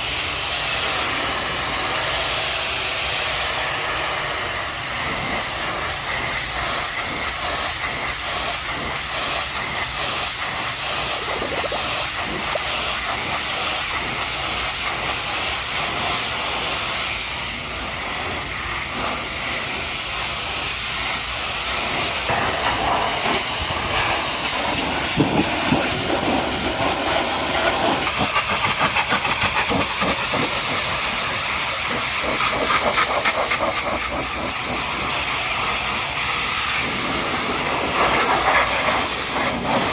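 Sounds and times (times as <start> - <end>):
pressure washer spraying water: 0.0 - 39.9.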